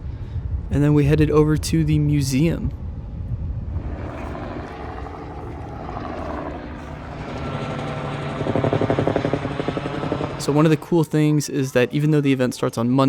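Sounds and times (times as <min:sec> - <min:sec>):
helicopter engine hum: 0:03.6 - 0:11.3
helicopter rotor chop: 0:03.7 - 0:11.4.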